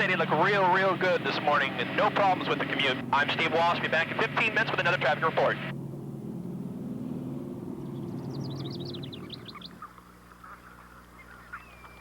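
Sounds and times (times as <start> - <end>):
low engine hum: 0.0 - 12.0
bird chirping: 7.8 - 12.0.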